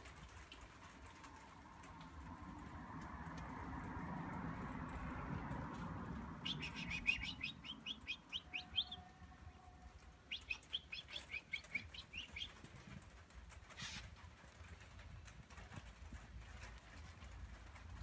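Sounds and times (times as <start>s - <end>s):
small bird chirping: 6.4s - 9.1s, 10.3s - 13.0s
brief rustle: 11.1s - 18.0s.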